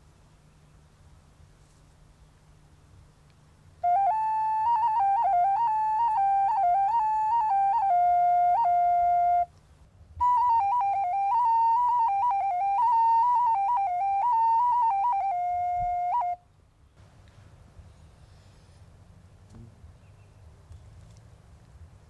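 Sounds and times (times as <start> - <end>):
solo flute melody: 3.8 - 16.5.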